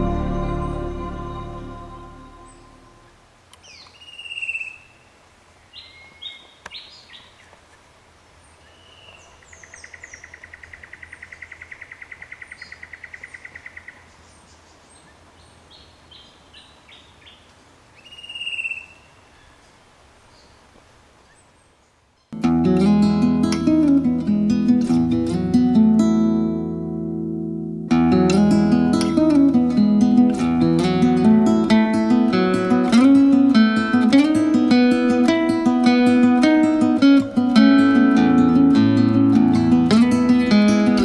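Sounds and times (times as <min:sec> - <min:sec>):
acoustic guitar music: 0:00.0 - 0:03.4, 0:22.4 - 0:41.0
faint steady hiss: 0:00.0 - 0:10.8, 0:12.6 - 0:41.0
bird chirps: 0:03.6 - 0:05.1, 0:05.7 - 0:07.5, 0:08.6 - 0:20.6
bird sweeping whistle: 0:18.0 - 0:19.1.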